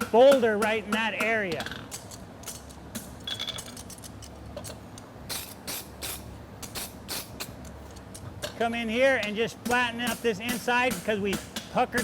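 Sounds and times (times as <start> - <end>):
hammer striking horseshoe on anvil: 0.0 - 2.0, 9.2 - 12.0
cooler fan hum: 0.0 - 12.0.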